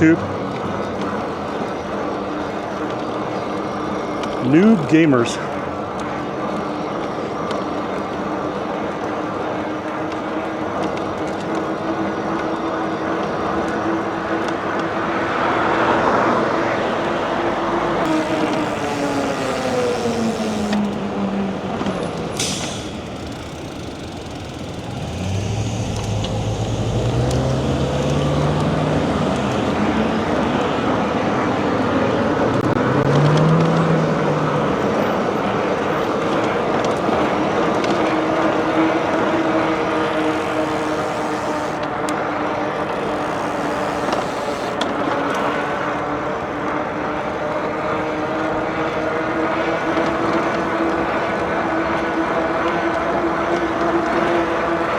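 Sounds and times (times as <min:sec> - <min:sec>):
road traffic: 0:00.0 - 0:54.9
vehicle engines: 0:00.0 - 0:54.9.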